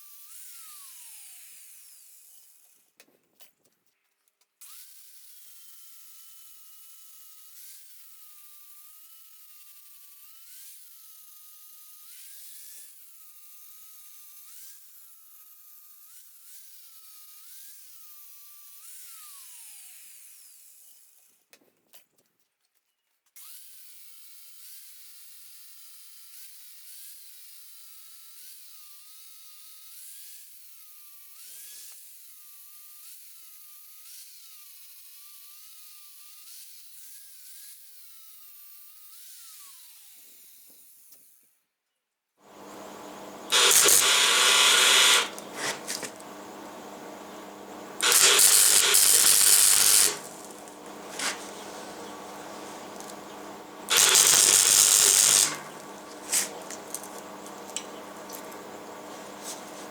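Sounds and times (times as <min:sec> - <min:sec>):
angle grinder cutting steel: 0:42.5 - 0:59.9.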